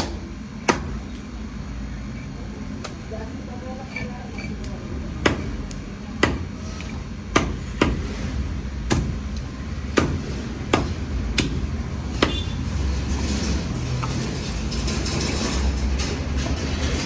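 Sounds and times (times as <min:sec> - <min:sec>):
blade chopping fish on wood: 0:00.0 - 0:01.0, 0:05.2 - 0:12.5.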